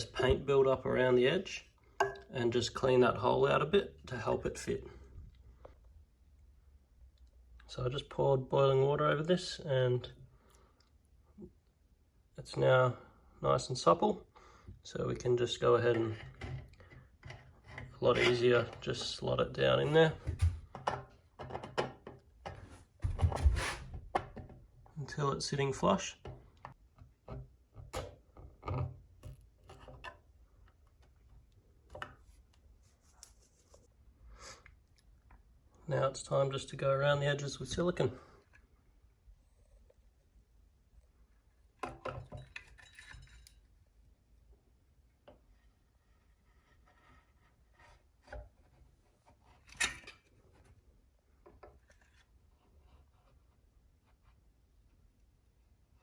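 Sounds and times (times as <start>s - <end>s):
rubbing and handling noises: 15.3s - 21.7s, 22.5s - 24.2s, 29.5s - 35.2s.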